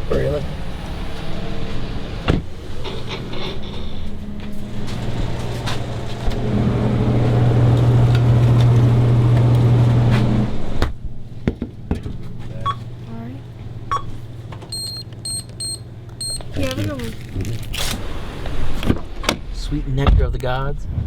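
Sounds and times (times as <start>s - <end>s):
motor vehicle running: 0.0s - 11.0s.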